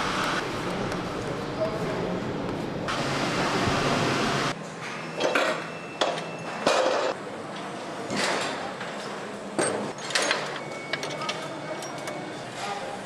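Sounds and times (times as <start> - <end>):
machinery hum: 0.0 - 8.0
metallic clinks of tools: 10.0 - 12.2.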